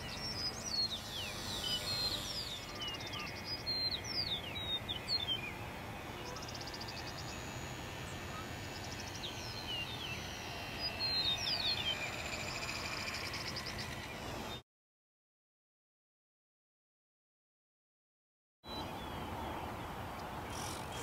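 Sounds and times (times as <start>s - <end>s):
downward-slurred bird whistles: 0.0s - 5.5s
rapid high bird trills: 0.0s - 5.6s, 20.5s - 21.0s
outdoor background noise: 0.0s - 14.6s, 18.7s - 21.0s.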